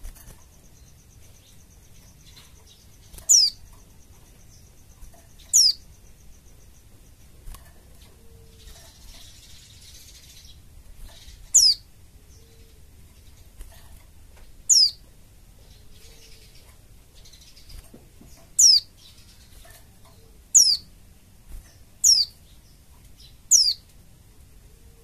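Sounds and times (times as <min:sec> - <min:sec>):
faint background chirping: 0:00.0 - 0:25.0
bird short high downward calls: 0:03.2 - 0:03.6, 0:05.5 - 0:05.8, 0:11.6 - 0:12.8, 0:14.7 - 0:15.0, 0:20.3 - 0:20.9, 0:22.0 - 0:22.4, 0:23.5 - 0:23.8.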